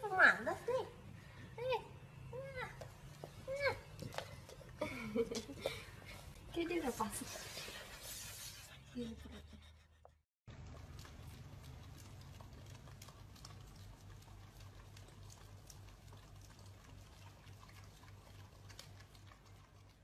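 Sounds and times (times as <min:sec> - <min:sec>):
dogs licking ice cream: 0:02.4 - 0:08.4, 0:10.5 - 0:20.0.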